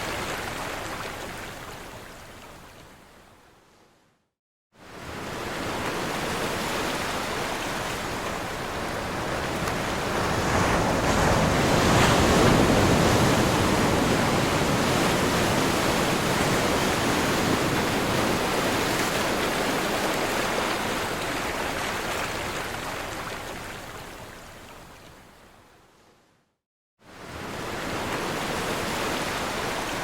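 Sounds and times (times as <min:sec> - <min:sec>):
ocean waves crashing on shore: 0:04.8 - 0:24.5, 0:27.1 - 0:30.0.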